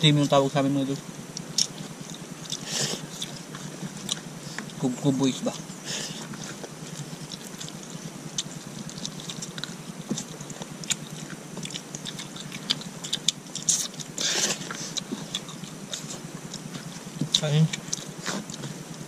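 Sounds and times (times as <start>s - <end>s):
people chewing food: 0.0s - 19.0s
mouth clicks: 1.3s - 4.8s, 5.5s - 19.0s.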